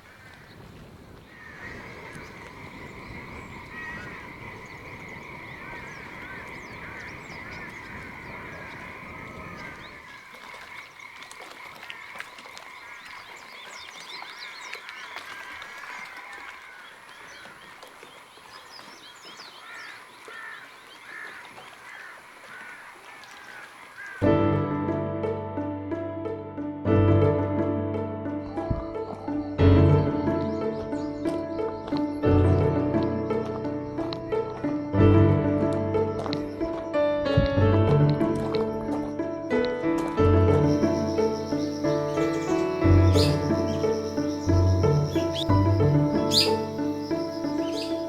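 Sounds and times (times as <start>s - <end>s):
frogs croaking in chorus: 0.0s - 24.2s, 40.7s - 48.0s.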